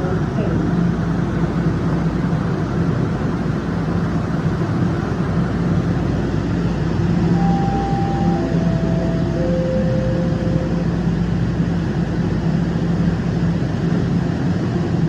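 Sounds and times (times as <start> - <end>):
subway train rumbling: 0.0 - 15.0
tone stepping down in pitch: 7.2 - 11.4.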